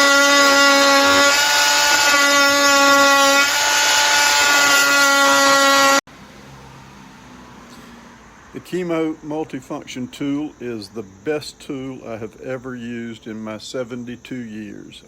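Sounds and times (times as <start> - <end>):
oscillating multi-tool whining: 0.0 - 6.0.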